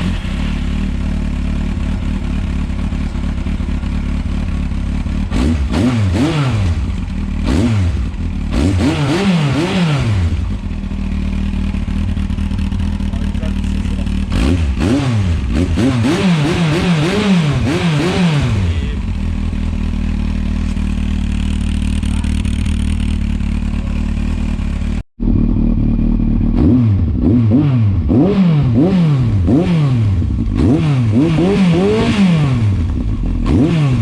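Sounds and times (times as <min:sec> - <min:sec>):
motorcycle engine idling: 0:00.0 - 0:08.8, 0:10.0 - 0:15.8, 0:18.5 - 0:27.2, 0:32.6 - 0:33.6
motorcycle engine revving: 0:00.0 - 0:34.0.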